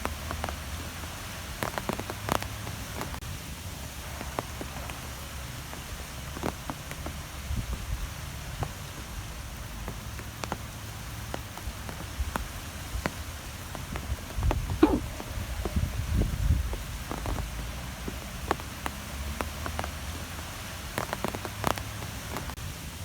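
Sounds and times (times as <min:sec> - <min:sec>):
rain falling: 0:00.0 - 0:23.0
low wind rumble: 0:11.7 - 0:19.0
drops ticking on a surface: 0:16.8 - 0:22.6.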